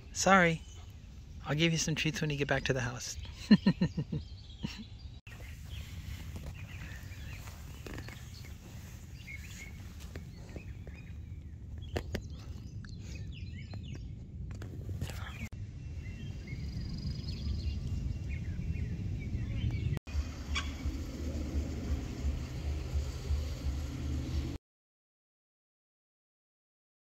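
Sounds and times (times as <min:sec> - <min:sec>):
birds chirping: 0:00.0 - 0:14.2, 0:15.0 - 0:24.6
steady low rumble: 0:00.0 - 0:24.6.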